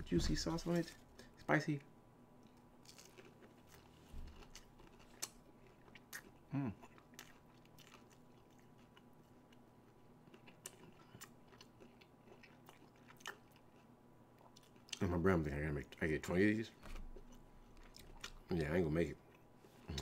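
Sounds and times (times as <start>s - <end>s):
person humming briefly: 6.5s - 6.8s.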